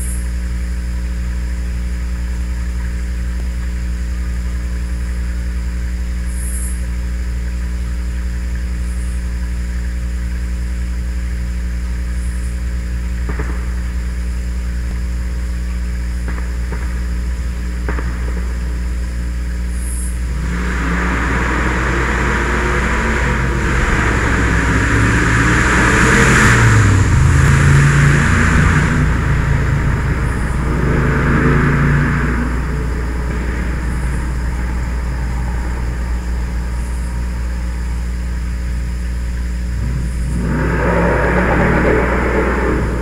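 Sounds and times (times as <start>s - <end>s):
steady low hum: 0.0s - 43.0s
truck engine revving past: 20.2s - 43.0s.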